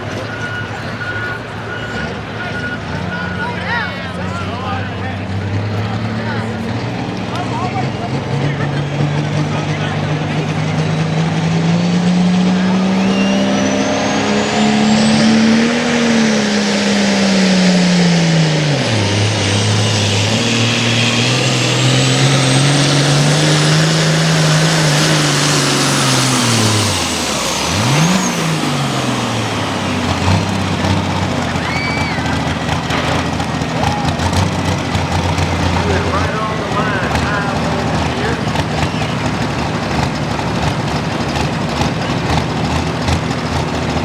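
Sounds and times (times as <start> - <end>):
tractor diesel engine at full throttle: 0.0 - 44.0.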